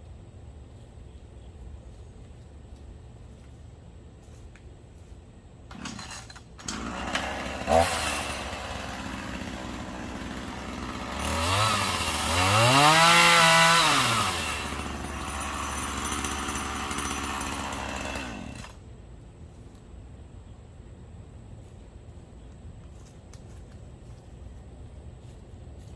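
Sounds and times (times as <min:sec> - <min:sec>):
two-stroke chainsaw idling and revving: 0:05.7 - 0:18.8.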